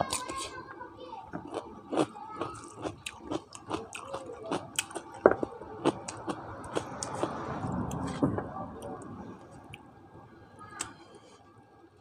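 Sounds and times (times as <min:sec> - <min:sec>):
chewing with wet mouth smacks: 0:01.4 - 0:08.2.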